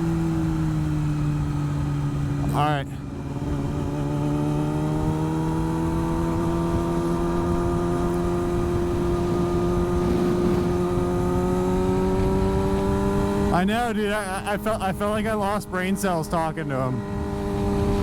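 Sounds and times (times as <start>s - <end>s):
motorcycle engine pulling: 4.0s - 13.6s, 16.2s - 18.0s
wind rush: 6.2s - 15.7s, 16.9s - 18.0s.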